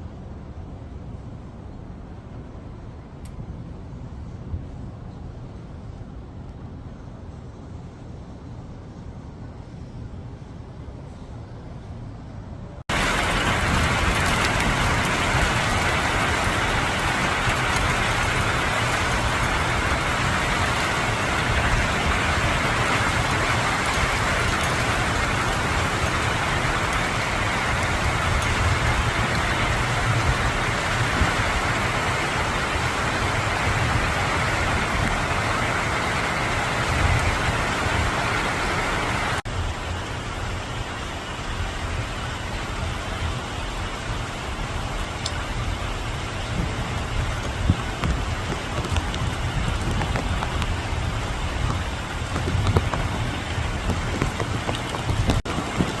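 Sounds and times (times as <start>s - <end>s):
heavy rain pouring: 12.9s - 56.0s.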